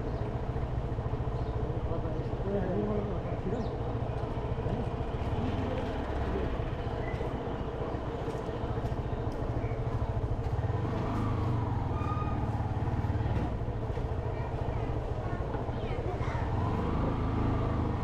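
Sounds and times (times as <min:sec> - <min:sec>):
road and wind noise: 0:00.0 - 0:18.0.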